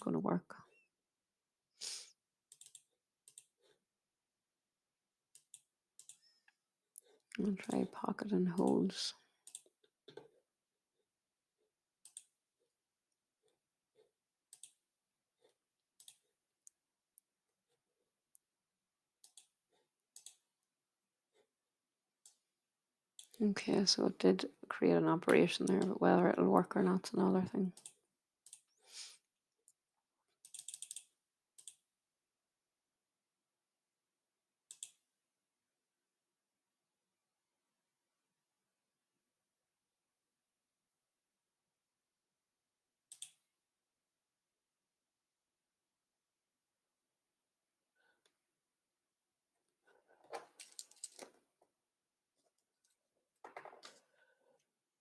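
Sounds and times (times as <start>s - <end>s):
computer mouse clicks: 2.5s - 3.6s, 5.4s - 6.3s, 9.5s - 9.7s, 12.0s - 12.3s, 14.5s - 14.8s, 16.0s - 16.2s, 19.2s - 19.5s, 20.2s - 20.4s, 25.3s - 25.9s, 27.8s - 28.7s, 30.4s - 31.8s, 34.7s - 35.0s, 43.1s - 43.4s, 50.6s - 51.3s.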